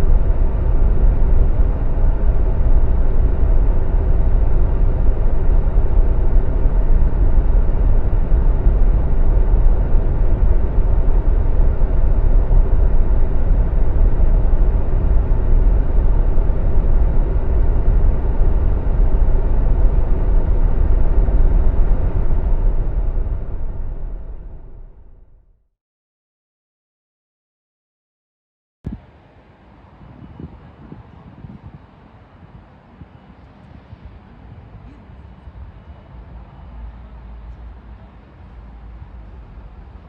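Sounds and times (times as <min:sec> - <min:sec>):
jet engines rumbling: 0:00.0 - 0:25.3.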